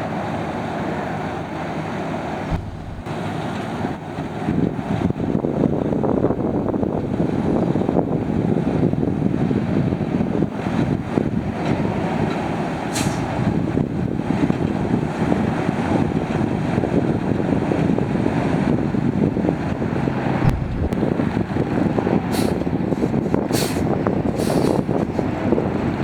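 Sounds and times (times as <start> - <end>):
diesel truck engine rumbling: 0.1 - 26.0
air brake hisses: 13.0 - 13.3, 22.3 - 22.6, 23.5 - 24.9.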